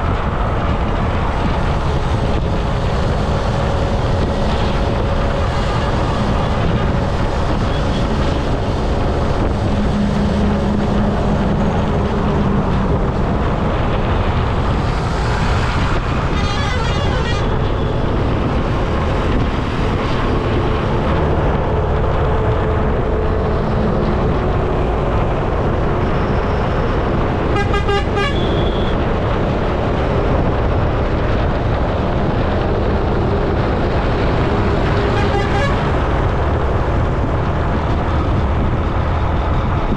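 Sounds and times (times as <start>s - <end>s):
road traffic: 0.0s - 39.9s
wind rush: 0.0s - 39.9s
vehicle horns honking: 16.3s - 17.9s, 27.5s - 29.0s, 35.1s - 35.9s.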